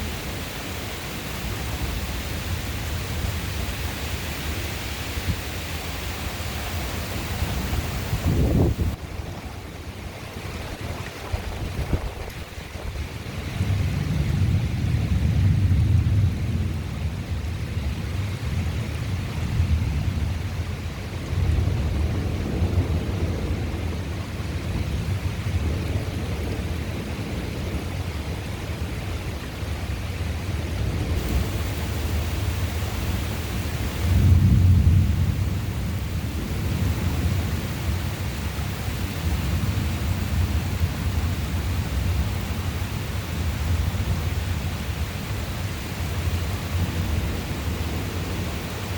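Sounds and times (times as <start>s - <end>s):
thunder rumbling: 0.0s - 9.5s, 31.0s - 48.9s
steady rain: 0.0s - 48.9s.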